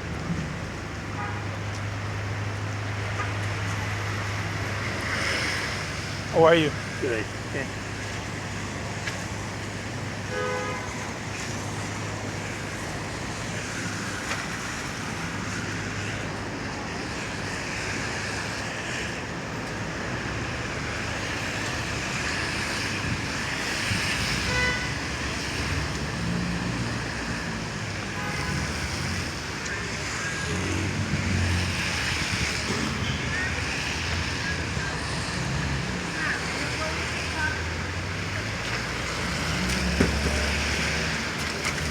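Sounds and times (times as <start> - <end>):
car engines: 0.0 - 41.9
tyre hiss on wet road: 2.9 - 19.2, 19.8 - 41.9.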